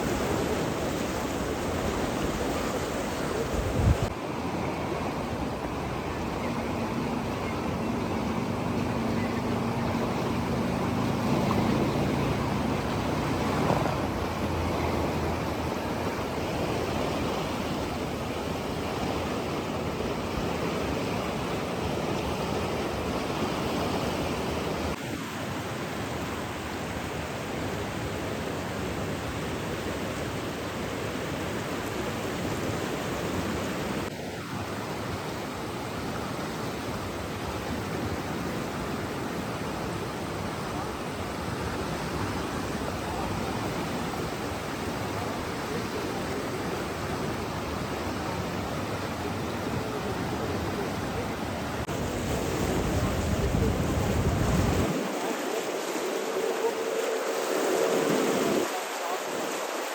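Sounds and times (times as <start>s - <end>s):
rushing water: 0.0s - 59.9s.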